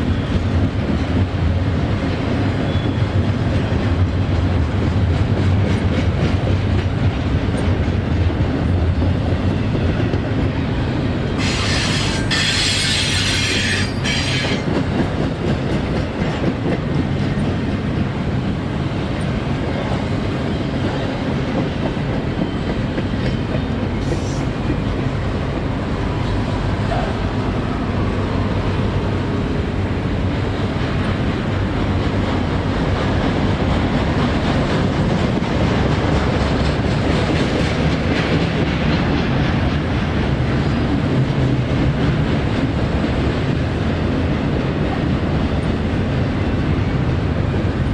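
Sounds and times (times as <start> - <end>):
wheels clickety-clack: 0.0 - 27.1, 28.7 - 47.9
freight train rumbling past: 0.0 - 47.9
high-pitched wheel squeal: 11.4 - 14.6.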